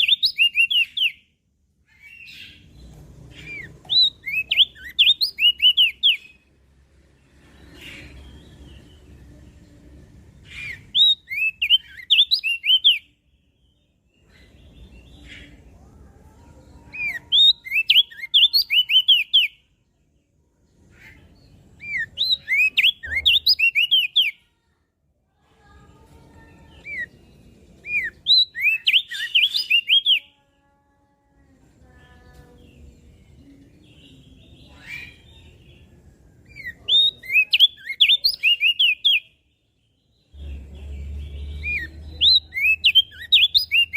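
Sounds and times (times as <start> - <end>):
bird singing rapid high chirps: 0.0 - 15.8, 16.8 - 19.8, 20.8 - 24.4, 26.4 - 30.3, 32.7 - 43.9.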